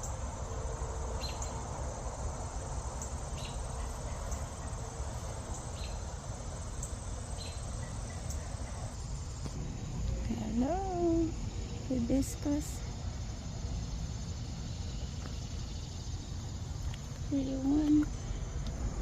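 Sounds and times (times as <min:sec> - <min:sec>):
high-pitched insect chorus: 0:00.0 - 0:19.0
short insect chirp: 0:00.0 - 0:19.0
low rumble: 0:08.5 - 0:12.1, 0:12.7 - 0:19.0.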